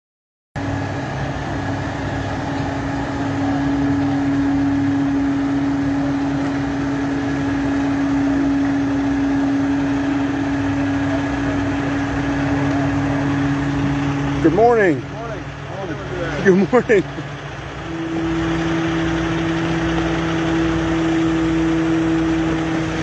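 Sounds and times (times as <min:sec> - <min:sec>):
engine idling: 0:00.6 - 0:23.0.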